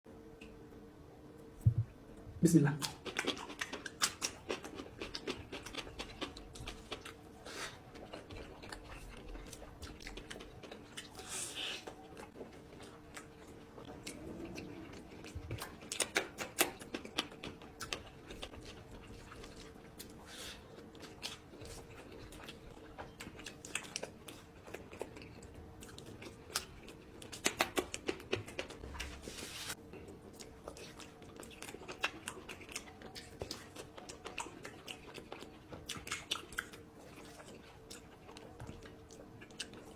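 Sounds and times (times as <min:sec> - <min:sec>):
wet chewing and smacking: 0:02.8 - 0:29.1, 0:29.9 - 0:39.9
mouth clicks and crunches: 0:23.2 - 0:28.8.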